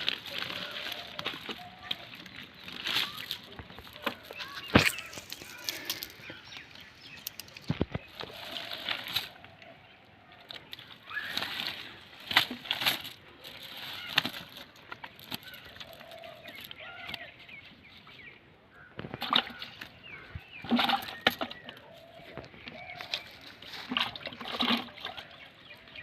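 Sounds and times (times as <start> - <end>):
fish flapping in a net: 0.0 - 6.2.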